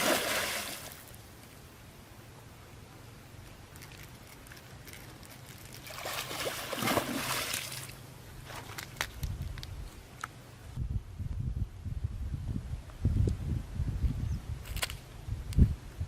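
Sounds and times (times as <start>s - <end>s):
water sloshing and splashing: 0.0s - 1.1s, 4.9s - 9.0s.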